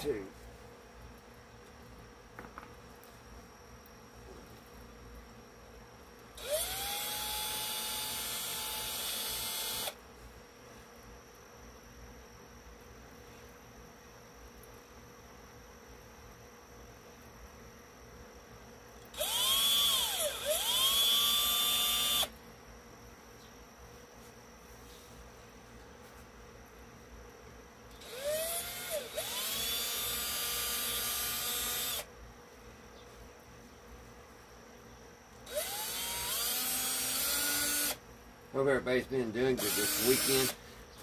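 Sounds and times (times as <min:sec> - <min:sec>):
electric drill whining: 0:06.4 - 0:10.0, 0:19.1 - 0:22.3, 0:27.9 - 0:32.1, 0:35.4 - 0:38.0, 0:39.6 - 0:40.6.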